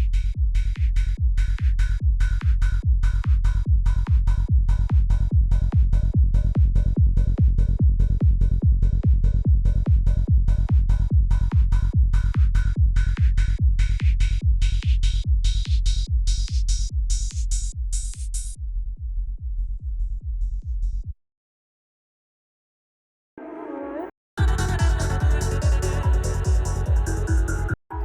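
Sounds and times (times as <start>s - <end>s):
rolling bassline: 0.0s - 16.8s, 24.4s - 27.8s
electronic kick drum: 0.0s - 21.2s, 24.4s - 28.0s.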